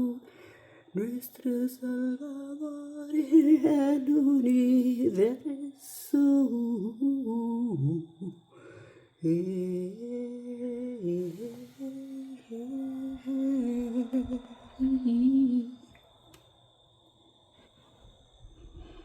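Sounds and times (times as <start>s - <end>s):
woman humming: 9.2s - 16.0s.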